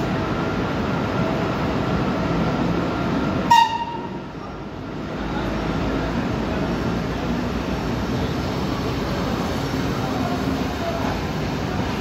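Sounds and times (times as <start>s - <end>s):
train coaches rumbling over rails: 0.0s - 12.0s
high-pitched train horn toot: 3.5s - 4.2s.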